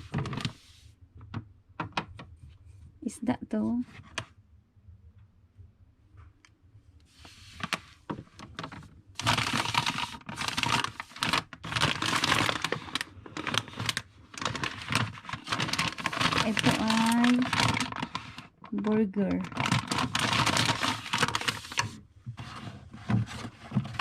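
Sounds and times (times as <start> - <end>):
plastic packaging crinkling: 0.0 - 0.6, 7.5 - 24.0.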